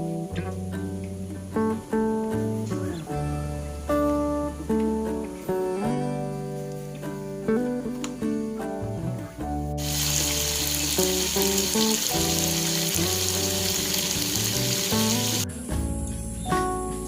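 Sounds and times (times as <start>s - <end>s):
acoustic guitar background music: 0.0s - 17.0s
steady sizzling hiss: 9.8s - 17.0s.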